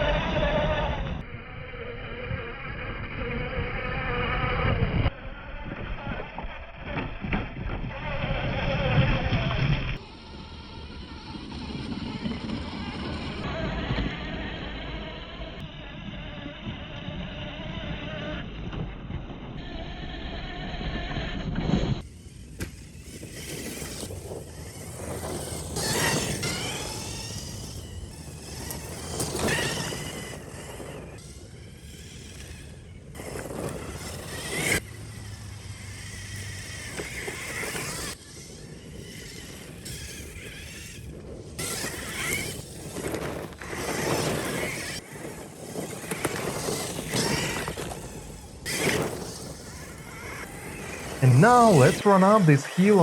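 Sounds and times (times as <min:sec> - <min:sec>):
background noise hiss: 0:51.2 - 0:53.0.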